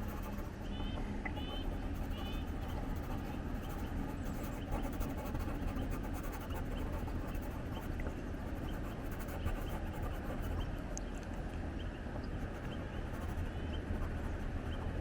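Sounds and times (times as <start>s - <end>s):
pencil scratching on paper: 0.0s - 0.7s, 1.4s - 10.8s, 12.4s - 14.9s
faint bird chirps: 0.4s - 4.9s, 8.6s - 14.0s.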